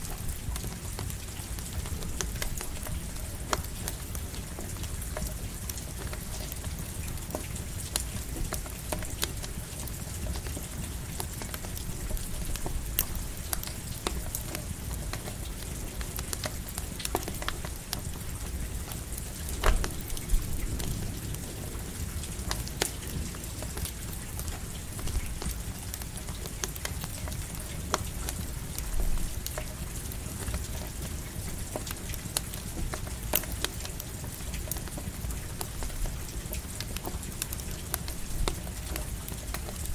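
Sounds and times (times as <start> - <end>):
campfire crackling and popping: 0.0 - 39.9
steady rain: 0.0 - 39.9.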